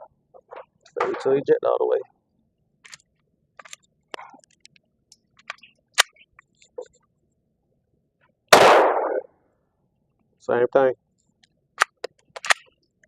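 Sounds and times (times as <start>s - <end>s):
gunshot with echo: 8.5s - 9.3s
pistol handling clicks: 11.8s - 12.7s.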